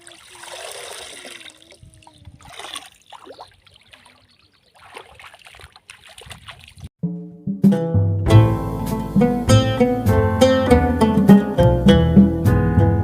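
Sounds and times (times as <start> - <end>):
water splashing and trickling: 0.0 - 6.9.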